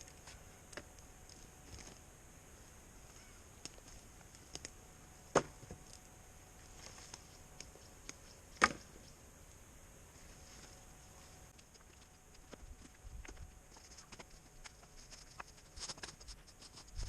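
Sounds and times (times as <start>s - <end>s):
sticks knocking and cracking: 6.8s - 9.0s.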